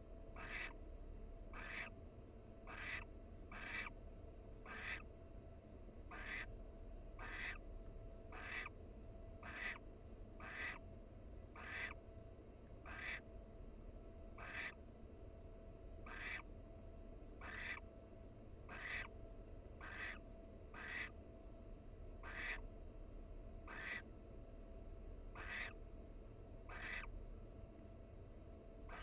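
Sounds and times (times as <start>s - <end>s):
barn owl hissing calls: 0.4s - 0.8s, 1.5s - 1.9s, 2.6s - 4.0s, 4.6s - 5.1s, 6.1s - 6.5s, 7.2s - 7.6s, 8.3s - 8.8s, 9.4s - 9.8s, 10.4s - 10.8s, 11.6s - 12.0s, 12.8s - 13.2s, 14.4s - 14.8s, 16.0s - 16.5s, 17.4s - 17.8s, 18.7s - 19.1s, 19.8s - 21.2s, 22.2s - 22.6s, 23.7s - 24.0s, 25.3s - 25.8s, 26.7s - 27.1s.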